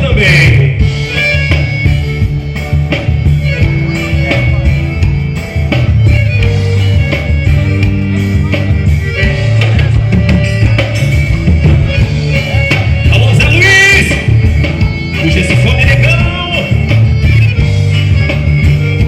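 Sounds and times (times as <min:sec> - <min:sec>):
band playing instrumental music: 0:00.0 - 0:19.0.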